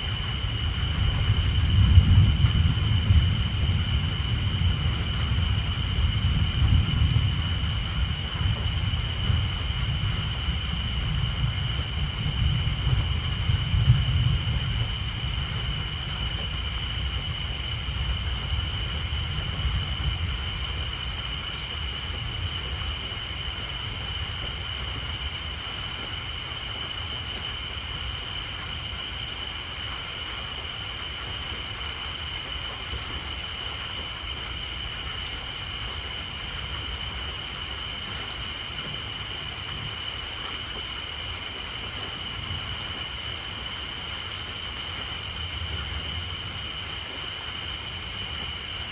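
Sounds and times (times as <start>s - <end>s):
low thunder rumble: 0.0s - 26.0s
rain on a tin roof: 0.0s - 48.9s
tree frogs chorus: 0.0s - 48.9s.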